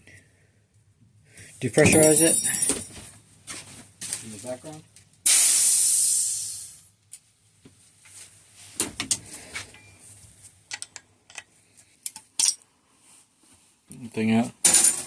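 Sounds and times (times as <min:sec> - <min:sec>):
air hissing out: 0:05.2 - 0:06.9
small parts clicking and knocking: 0:10.7 - 0:12.6.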